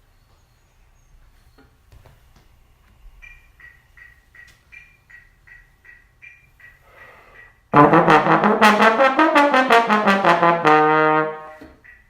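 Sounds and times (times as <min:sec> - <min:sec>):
brass instrument playing: 0:07.7 - 0:11.7.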